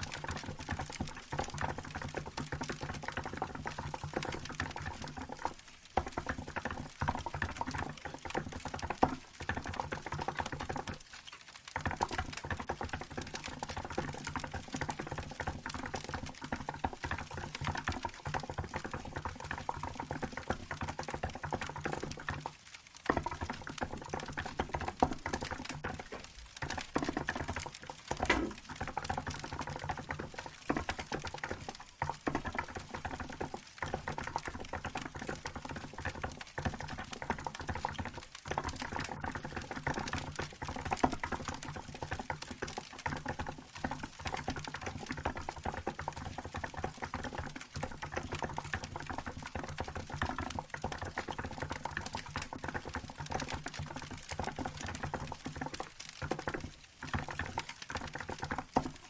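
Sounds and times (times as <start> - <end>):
wood fire crackling: 4.8 - 36.5.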